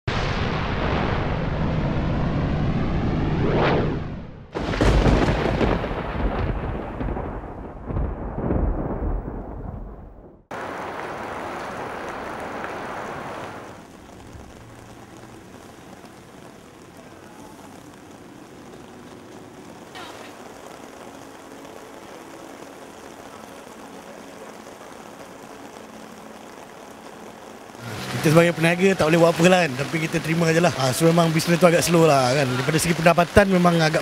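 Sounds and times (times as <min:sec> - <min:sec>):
thunder rumbling: 0:00.1 - 0:24.7
whooshing sweep: 0:01.2 - 0:04.5
heavy rain: 0:04.5 - 0:34.0
rain hiss on a wet street: 0:04.6 - 0:07.4, 0:10.5 - 0:34.0.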